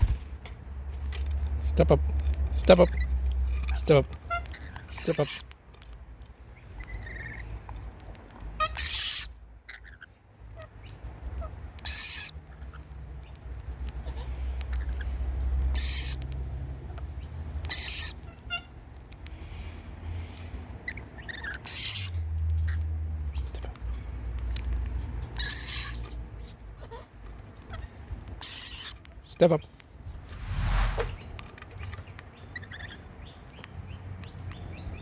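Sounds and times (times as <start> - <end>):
faint low rumble: 30.0 - 31.6.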